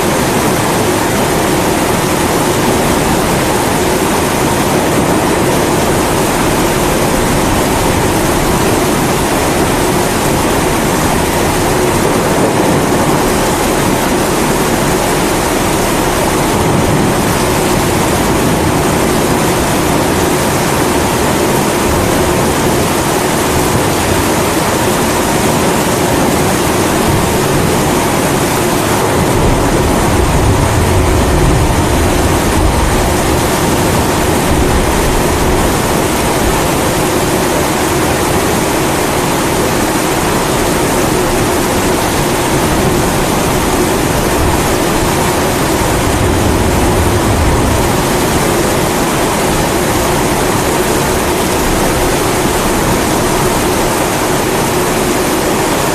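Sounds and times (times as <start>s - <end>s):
steady rain: 0.0s - 55.9s
thunder rumbling: 0.0s - 55.9s
pressure stove burner roaring: 42.6s - 50.0s.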